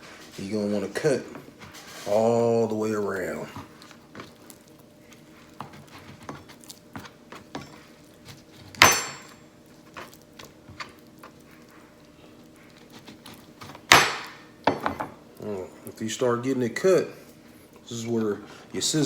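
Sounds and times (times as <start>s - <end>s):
knife scraping chicken bone: 3.2s - 8.8s, 9.7s - 13.9s.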